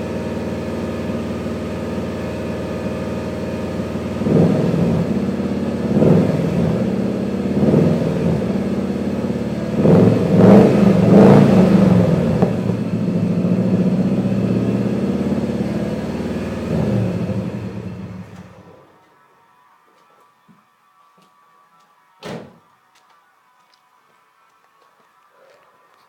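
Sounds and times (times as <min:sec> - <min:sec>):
car engine revving: 0:00.0 - 0:18.8.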